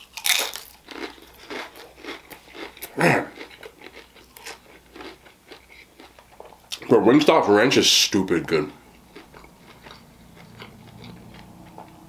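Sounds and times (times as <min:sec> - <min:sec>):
chewing and biting sandwich: 0:00.0 - 0:06.9, 0:08.7 - 0:12.0.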